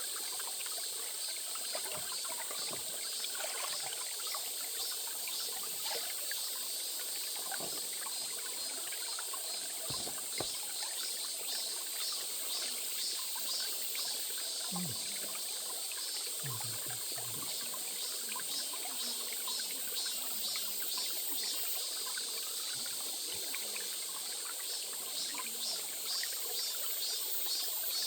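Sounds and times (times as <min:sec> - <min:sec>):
stream trickling and babbling: 0:00.0 - 0:28.0
small water splashes: 0:01.4 - 0:11.5.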